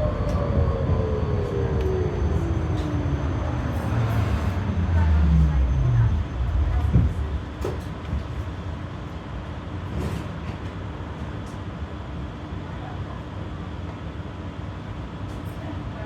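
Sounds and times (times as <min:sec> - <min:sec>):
tram wheels rumbling on rails: 0:00.0 - 0:11.4.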